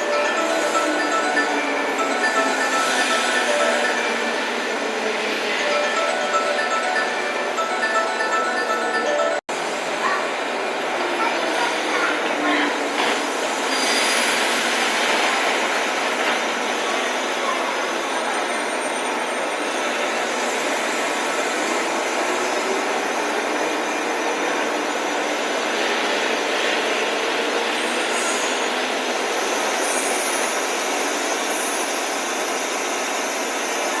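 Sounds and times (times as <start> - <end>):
train wheels rumbling on rails: 9.8 - 34.0.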